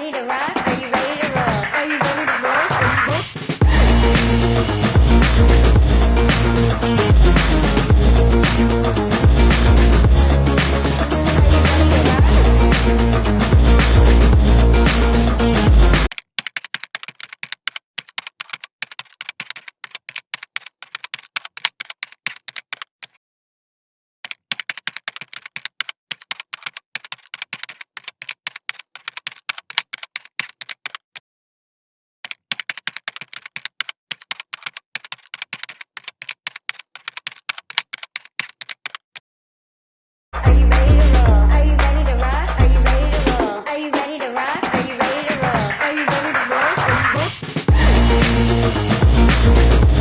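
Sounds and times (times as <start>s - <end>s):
keyboard typing clicks: 16.0s - 23.2s, 24.2s - 31.1s, 32.2s - 39.1s.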